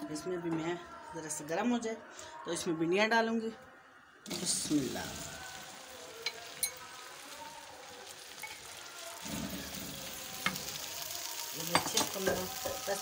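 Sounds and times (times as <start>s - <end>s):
vegetables sizzling in oil: 4.2s - 13.0s.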